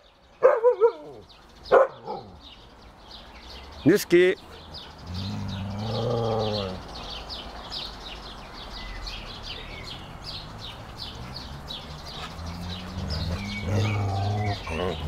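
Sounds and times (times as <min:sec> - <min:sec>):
dog grumbling: 0:05.0 - 0:06.8, 0:12.6 - 0:15.0.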